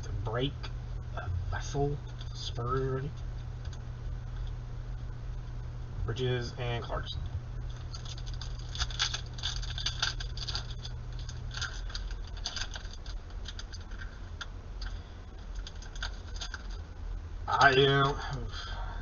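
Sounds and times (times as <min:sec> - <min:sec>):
trading cards clicking and rustling: 0:07.6 - 0:16.8.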